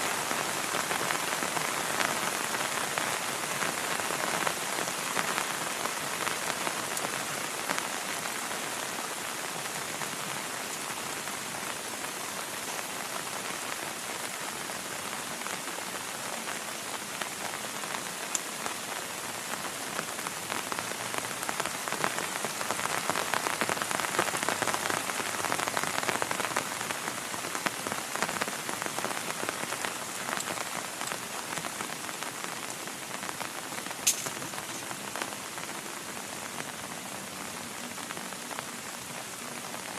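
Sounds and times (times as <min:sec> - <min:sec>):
heavy rain falling: 0:00.0 - 0:39.9
sharp click: 0:34.0 - 0:34.4.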